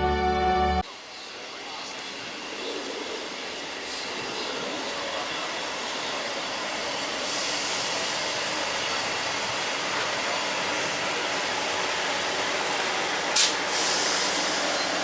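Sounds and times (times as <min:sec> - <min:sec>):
train rushing rail noise: 0:00.0 - 0:15.0
high hiss: 0:13.4 - 0:15.0.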